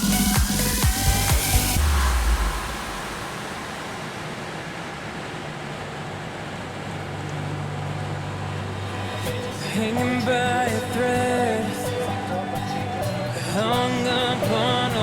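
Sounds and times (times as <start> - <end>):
rush of air: 0.0 - 6.8
low hum: 0.0 - 15.0.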